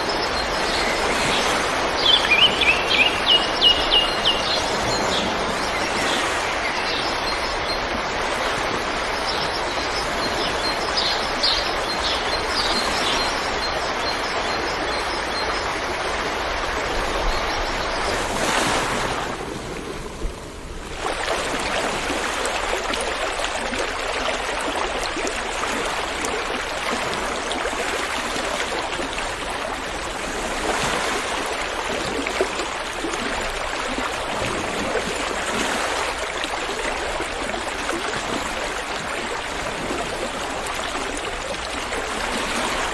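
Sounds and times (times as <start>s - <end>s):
river rushing over rocks: 0.0s - 42.9s.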